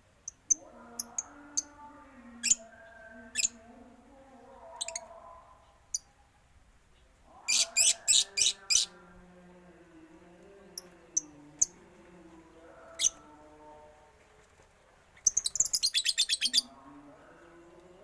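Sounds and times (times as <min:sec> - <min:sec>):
birds wavering drawn-out calls: 0:07.3 - 0:09.0, 0:15.2 - 0:16.9.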